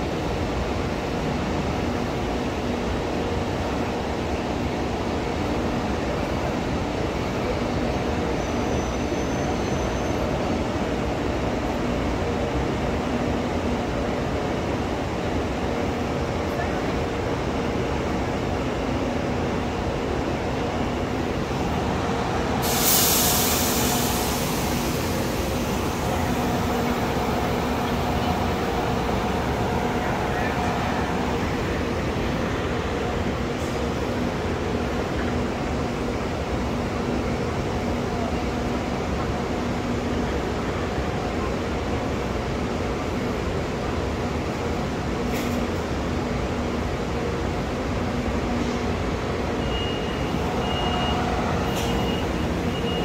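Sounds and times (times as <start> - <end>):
train humming: 10.3 - 53.0
loud hiss: 21.6 - 30.3.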